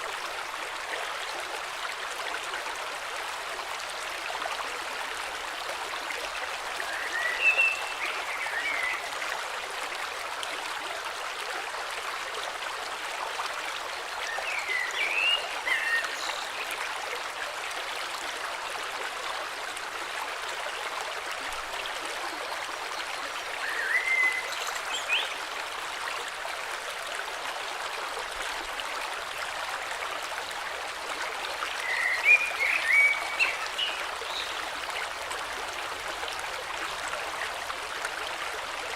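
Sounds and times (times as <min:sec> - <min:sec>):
river water rushing: 0:22.5 - 0:26.1, 0:31.6 - 0:38.9.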